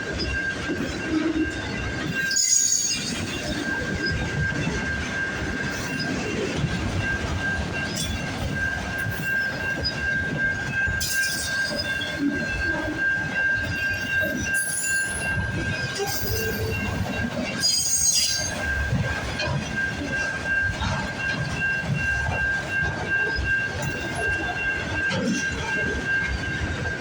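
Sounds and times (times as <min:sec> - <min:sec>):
train rumbling past: 0:00.0 - 0:27.0
high-pitched wheel squeal: 0:13.6 - 0:18.8.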